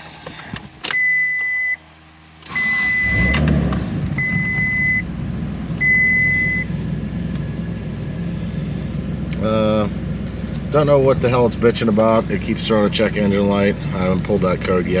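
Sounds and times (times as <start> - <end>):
dashboard warning chime beeping: 0.9 - 1.8, 2.5 - 3.5, 4.2 - 5.1, 5.8 - 6.8
car engine cranking and running: 2.3 - 15.0.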